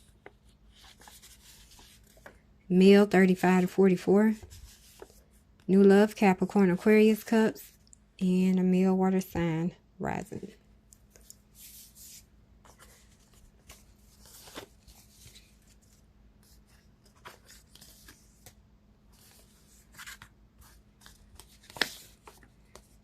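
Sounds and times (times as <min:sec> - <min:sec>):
cards sliding and rustling: 0:11.0 - 0:18.6, 0:19.2 - 0:23.0.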